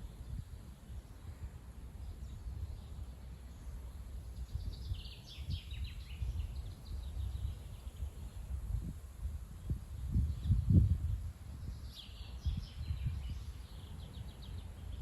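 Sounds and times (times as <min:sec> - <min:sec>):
gusty wind on microphone: 0:00.0 - 0:03.1, 0:04.2 - 0:15.0
bird chirping: 0:02.0 - 0:08.5, 0:11.6 - 0:15.0.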